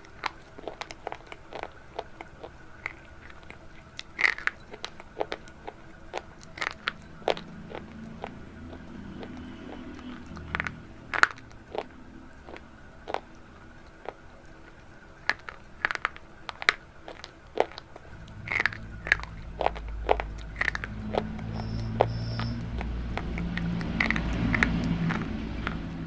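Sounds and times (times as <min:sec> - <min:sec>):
crunchy food being chewed: 0:00.0 - 0:26.0
low rumble: 0:17.8 - 0:26.0.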